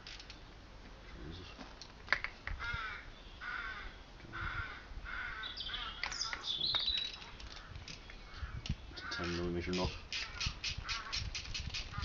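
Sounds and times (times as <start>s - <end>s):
bird calling harshly: 2.6s - 12.0s.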